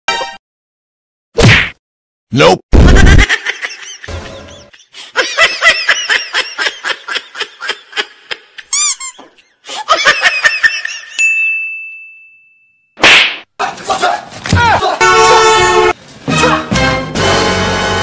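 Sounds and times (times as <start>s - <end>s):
squeaky sped-up laughter effect: 2.8s - 5.0s, 8.6s - 9.3s
high bell-like ding: 11.2s - 12.9s.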